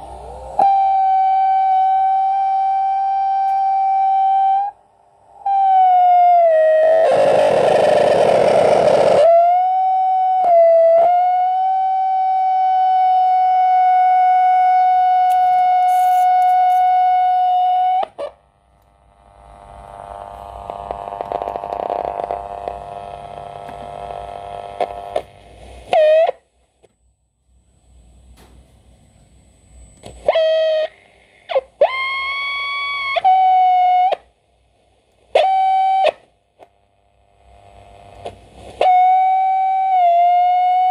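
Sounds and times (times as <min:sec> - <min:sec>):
radio whistle tone: 0:00.0 - 0:04.8, 0:05.4 - 0:18.4, 0:24.8 - 0:26.5, 0:28.4 - 0:34.3, 0:35.4 - 0:36.3, 0:38.8 - 0:40.9
buzzing static hiss: 0:00.0 - 0:09.6, 0:11.3 - 0:40.9.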